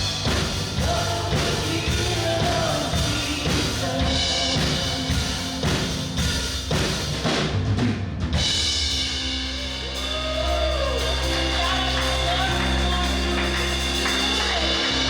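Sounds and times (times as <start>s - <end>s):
drum hit: 0.0s - 9.4s
sustained band chords: 8.4s - 15.0s.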